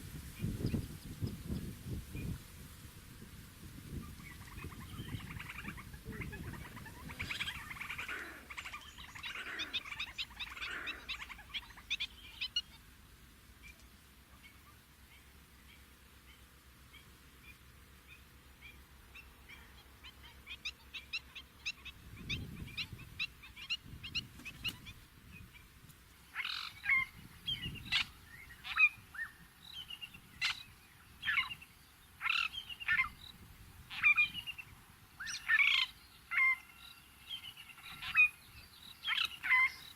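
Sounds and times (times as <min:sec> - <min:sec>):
bird chirping and calling: 0:04.0 - 0:12.8, 0:17.5 - 0:25.6, 0:26.3 - 0:39.9.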